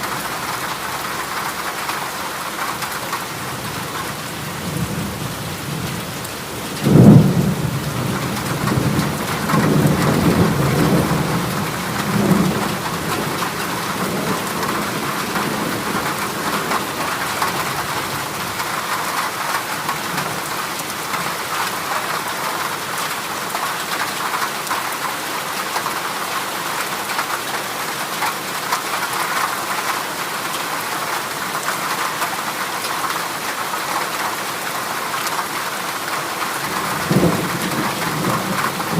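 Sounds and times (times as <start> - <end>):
heavy rain on a metal roof: 0.0 - 38.9
thunder clap and rumbles: 6.6 - 20.5, 36.6 - 38.9.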